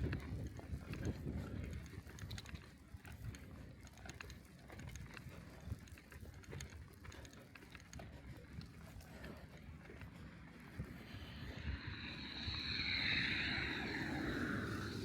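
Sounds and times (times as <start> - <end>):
wind on microphone: 0.0 - 3.6, 10.0 - 15.0
bicycle tyres rumbling on snow: 0.0 - 15.0
light clicks and ticks: 0.0 - 15.0.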